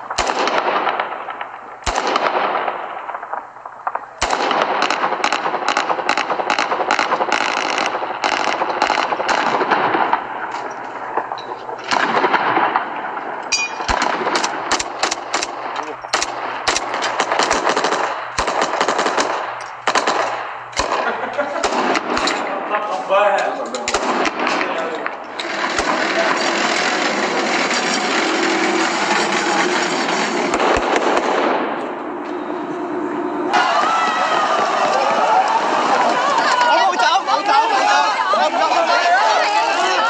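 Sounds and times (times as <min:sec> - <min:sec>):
rapid automatic gunfire: 0:00.0 - 0:10.5, 0:11.1 - 0:13.2, 0:13.8 - 0:22.6, 0:23.9 - 0:31.8
gunshots with echo: 0:00.0 - 0:23.0, 0:23.8 - 0:33.5.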